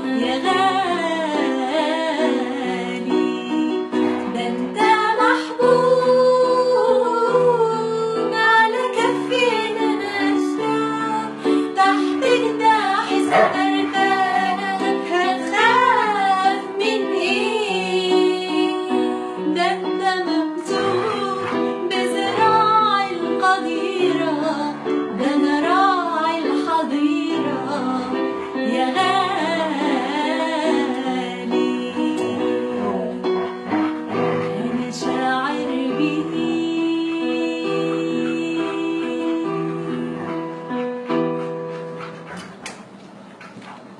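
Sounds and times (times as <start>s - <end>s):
solo voice singing a hymn: 0.0s - 33.2s, 34.6s - 40.3s
instrumental accompaniment: 2.5s - 5.2s, 28.2s - 43.0s.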